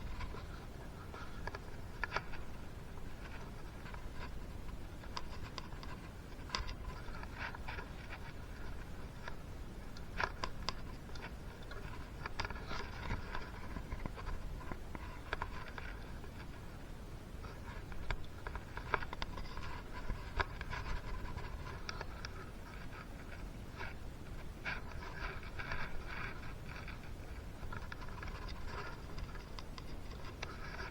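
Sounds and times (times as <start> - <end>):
small parts and tools clicking: 0.0 - 16.6, 24.6 - 30.9
steady low hum: 0.0 - 30.9.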